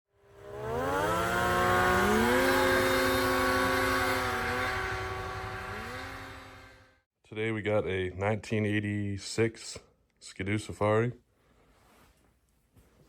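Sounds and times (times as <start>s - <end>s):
snowmobile engines revving: 0.2s - 7.0s.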